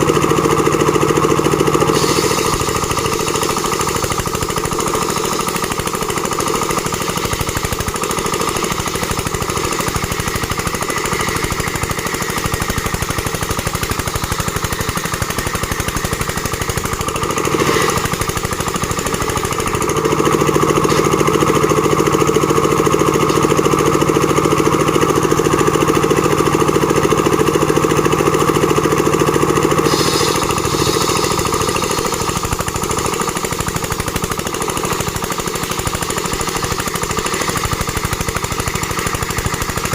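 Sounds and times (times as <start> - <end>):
machine hammering beat: 1.9 - 21.8, 29.9 - 39.9.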